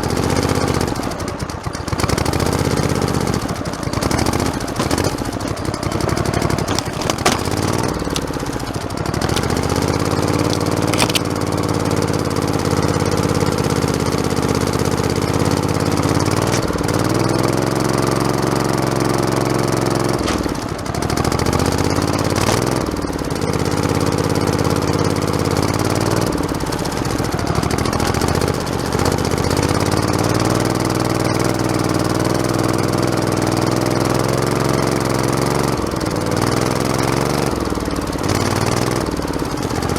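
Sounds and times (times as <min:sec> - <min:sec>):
lawn tractor engine running: 0:00.0 - 0:39.9
sharp knocks: 0:06.6 - 0:09.8.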